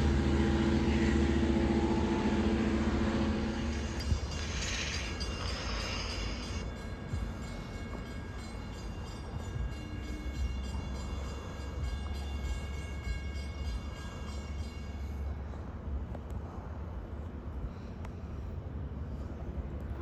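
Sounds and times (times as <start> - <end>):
diesel train rumbling: 0.0 - 20.0
high ringing tones: 0.6 - 15.6.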